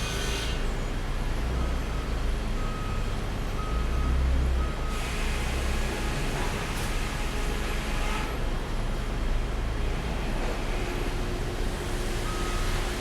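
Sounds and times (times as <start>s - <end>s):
sawmill machinery humming and clattering: 0.0s - 1.0s, 9.9s - 13.0s.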